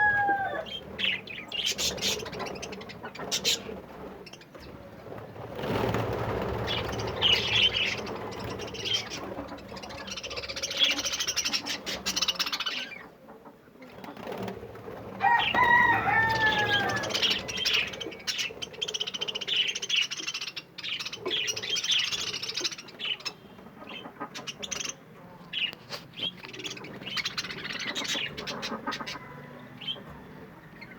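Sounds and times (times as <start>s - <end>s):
loud falling bird call: 0.0s - 1.2s, 15.2s - 18.5s
budgerigars chattering: 0.6s - 4.5s, 6.6s - 13.1s, 16.4s - 30.9s.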